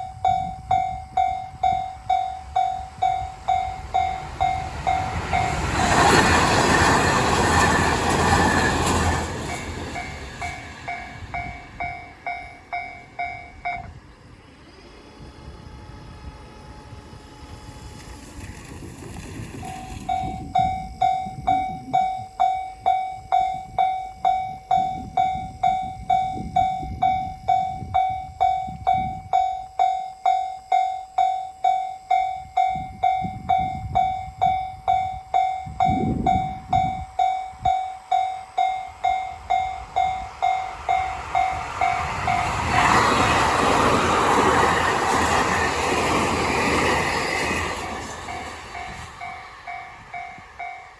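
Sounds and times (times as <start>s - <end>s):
train rumbling past: 0.0s - 50.9s
level crossing bell ringing: 10.0s - 13.9s, 48.3s - 50.9s.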